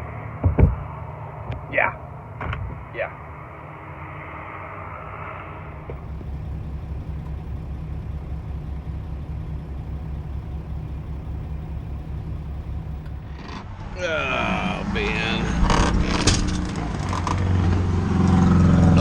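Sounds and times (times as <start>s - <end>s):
truck diesel engine idling: 5.9s - 16.6s.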